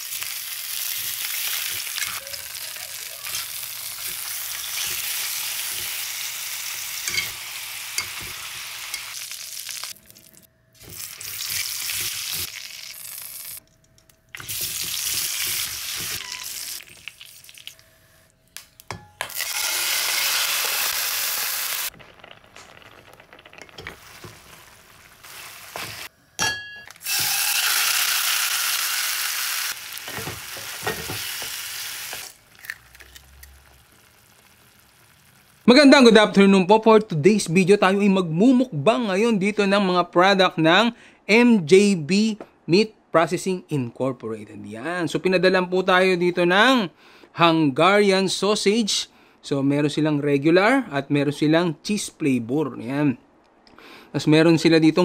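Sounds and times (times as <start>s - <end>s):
sausages sizzling in a pan: 0.0s - 13.6s, 19.4s - 26.1s, 27.0s - 35.7s.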